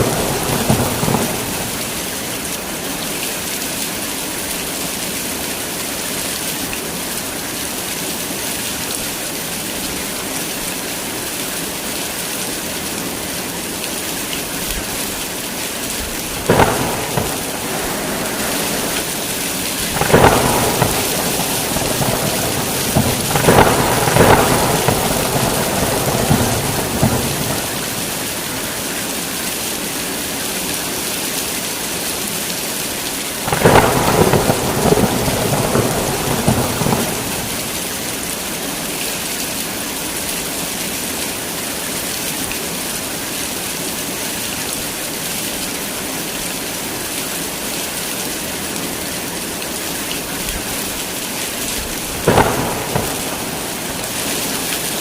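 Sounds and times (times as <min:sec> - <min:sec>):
thunder cracking and rumbling: 0:00.0 - 0:02.4, 0:16.2 - 0:28.8, 0:33.5 - 0:38.2, 0:51.8 - 0:55.0
heavy rain pouring: 0:00.0 - 0:55.0.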